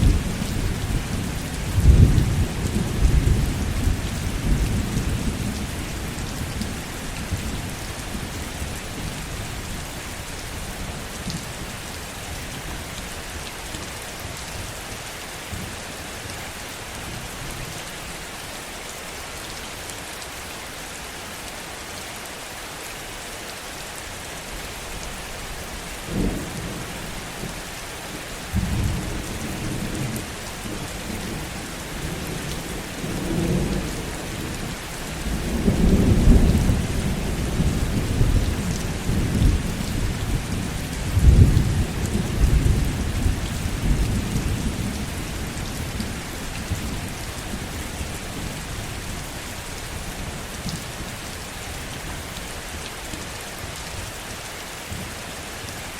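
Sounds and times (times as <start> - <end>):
rolling thunder: 0.0 - 6.3
heavy rain falling: 0.0 - 55.9.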